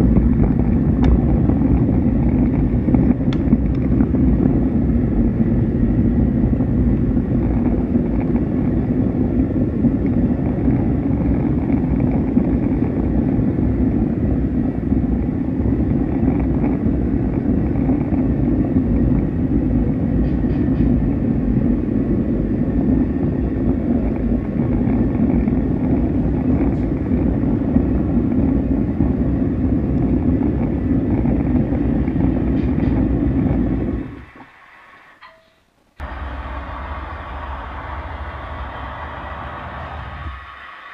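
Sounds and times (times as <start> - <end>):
train rumbling: 0.0 - 40.9.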